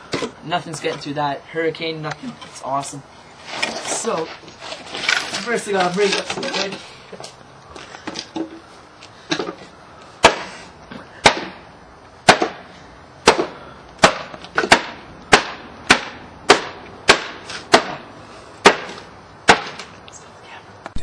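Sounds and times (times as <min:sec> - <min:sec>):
sharp blows breaking wood: 0:10.2 - 0:11.6, 0:12.2 - 0:20.0.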